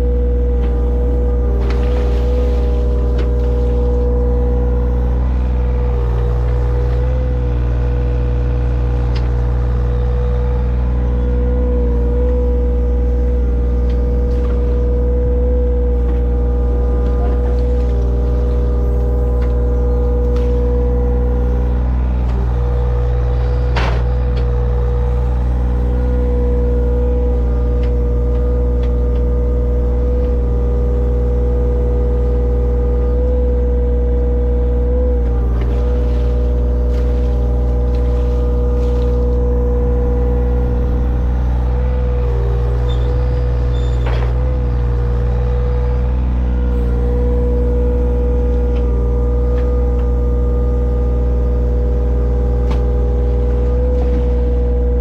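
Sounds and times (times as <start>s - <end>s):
digging machine engine running: 0.0s - 55.0s
steady whine: 36.3s - 55.0s.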